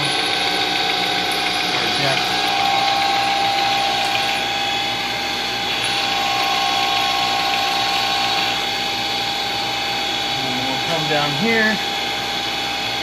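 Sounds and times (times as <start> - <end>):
milling machine spindle whine: 0.0 - 13.0.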